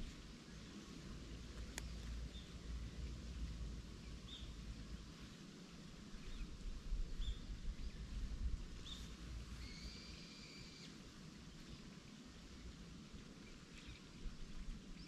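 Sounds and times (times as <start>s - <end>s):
bird chirps: 8.8s - 10.9s
steady bird whistle: 8.8s - 11.0s.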